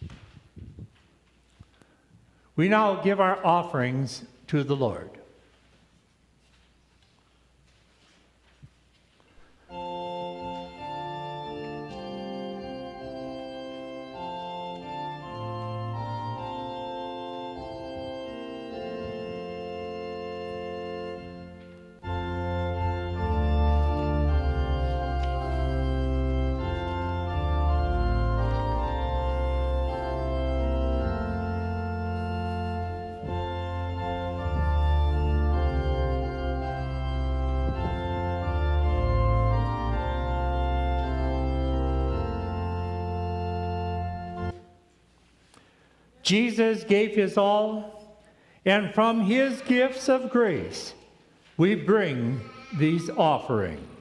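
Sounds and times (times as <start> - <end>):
church organ chords: 1.8 - 5.8, 9.3 - 54.0
deep organ bass notes: 9.6 - 44.8.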